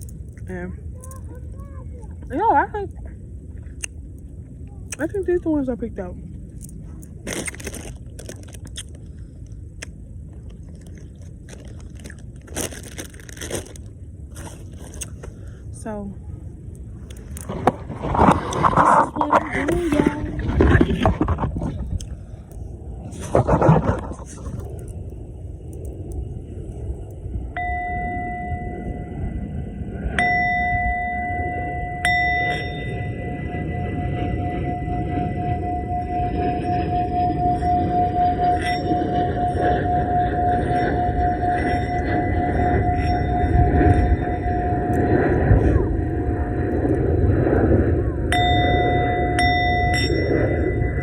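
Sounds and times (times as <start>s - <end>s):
steady low rumble: 0.0s - 51.0s
person chewing grapes: 3.6s - 4.0s, 6.6s - 15.5s, 17.0s - 17.8s, 21.6s - 22.6s
singing bowl ringing: 27.5s - 46.5s, 48.2s - 51.0s.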